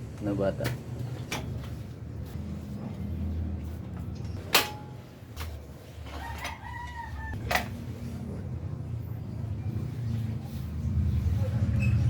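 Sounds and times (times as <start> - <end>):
rooster crowing: 6.1 - 7.5.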